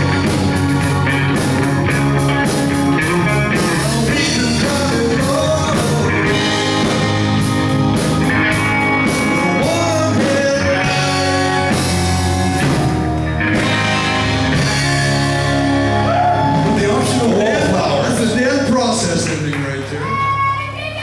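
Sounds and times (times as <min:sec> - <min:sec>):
rock band playing: 0:00.0 - 0:19.5
person singing: 0:03.0 - 0:07.0, 0:09.0 - 0:13.2.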